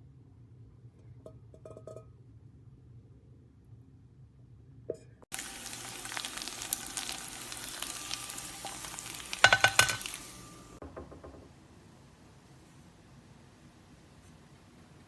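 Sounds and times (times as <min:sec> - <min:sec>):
food sizzling in a pan: 0:05.3 - 0:10.8
utensil clattering against pan: 0:07.7 - 0:10.5.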